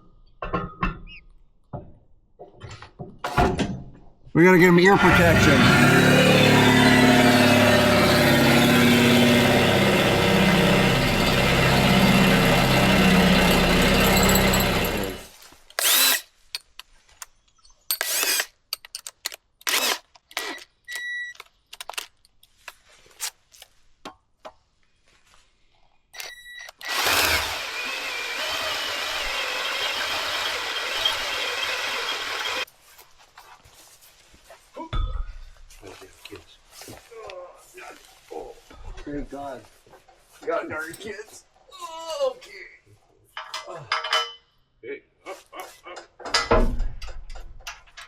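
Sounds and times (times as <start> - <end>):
loud motor humming: 5.0 - 16.0, 26.8 - 32.6.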